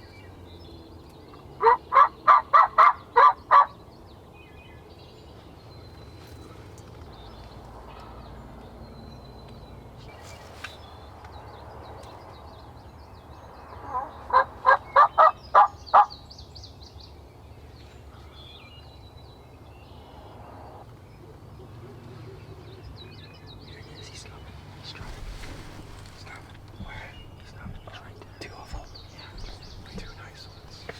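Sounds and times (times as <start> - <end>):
turkey gobbling: 1.6 - 3.7, 13.8 - 16.1.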